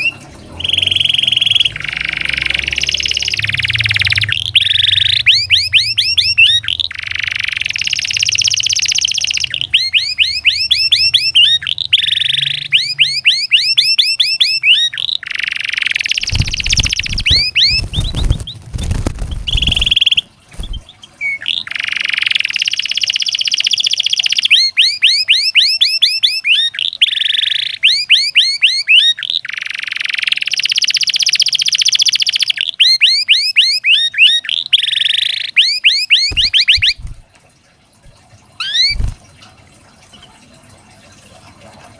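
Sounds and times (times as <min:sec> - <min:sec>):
canary singing: 0:00.0 - 0:37.2, 0:38.6 - 0:39.2
low thumps: 0:16.2 - 0:20.0.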